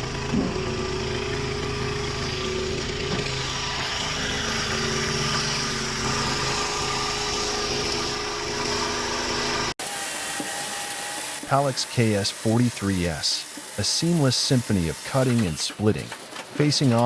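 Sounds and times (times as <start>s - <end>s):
log splitter engine running: 0.0s - 9.7s
quieter machine sound: 0.0s - 9.7s.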